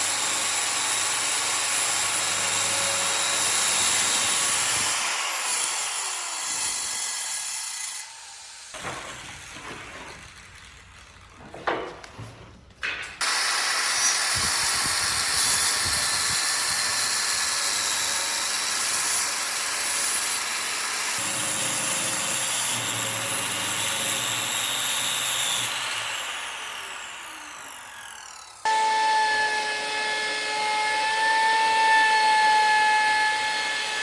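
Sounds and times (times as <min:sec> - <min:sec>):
power tool hissing on wood: 0:13.2 - 0:32.6.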